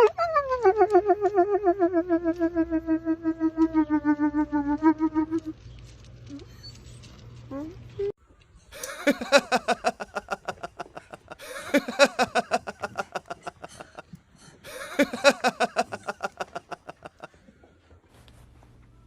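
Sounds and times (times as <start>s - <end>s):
rapid pulsed calls: 0.6s - 5.6s.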